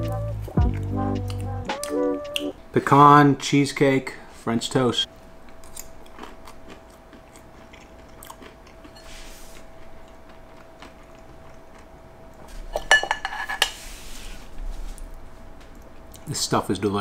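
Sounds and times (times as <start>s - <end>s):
person chewing: 0.1s - 2.5s, 5.4s - 12.4s.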